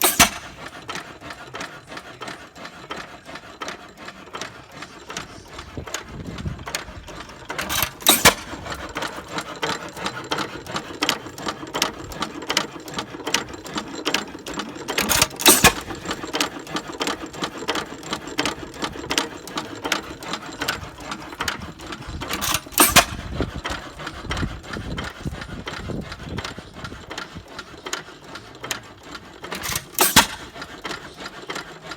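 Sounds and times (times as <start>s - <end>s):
stationary engine firing: 0.0s - 0.7s
mechanical clicking of valve gear: 0.0s - 1.0s, 5.1s - 31.7s.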